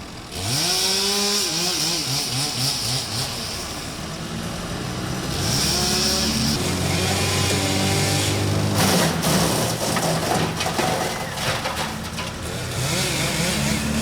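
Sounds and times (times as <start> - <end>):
chainsaw revving: 0.2 - 4.1, 5.1 - 9.9, 12.5 - 14.0.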